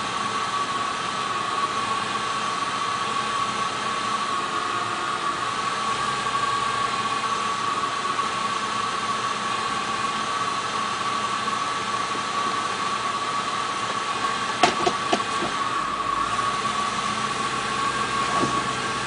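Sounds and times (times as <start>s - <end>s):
car engine idling roughly: 7.0s - 19.0s.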